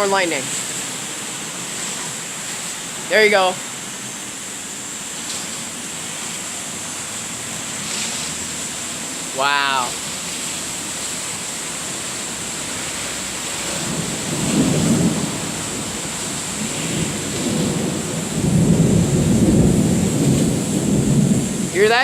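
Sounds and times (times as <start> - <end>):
steady rain hiss: 0.0 - 22.0
rolling thunder: 13.6 - 21.8.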